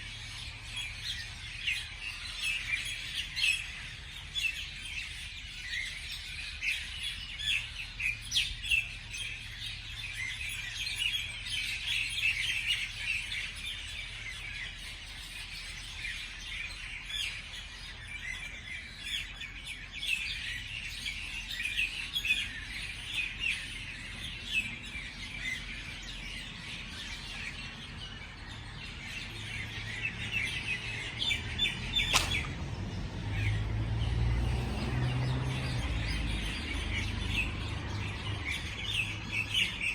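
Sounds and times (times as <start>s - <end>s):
songbirds chirping: 0.0s - 39.9s
sharp click: 32.1s - 32.6s.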